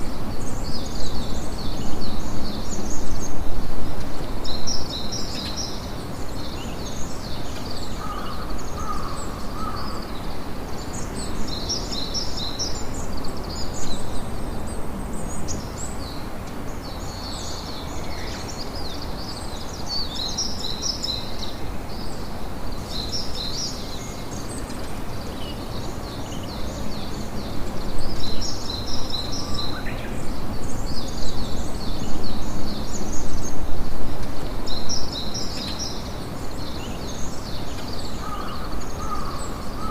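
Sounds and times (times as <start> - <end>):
birds chirping: 34.3 - 39.9.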